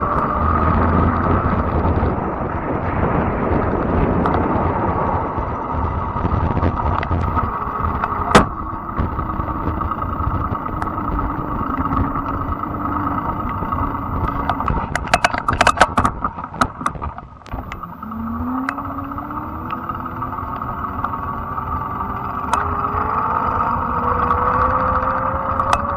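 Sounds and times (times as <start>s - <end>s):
electric motor whine: 5.8s - 15.6s, 16.6s - 25.9s
clicks and rattles: 7.0s - 25.9s
sharp click: 7.2s - 8.6s, 14.3s - 17.9s, 22.1s - 25.9s.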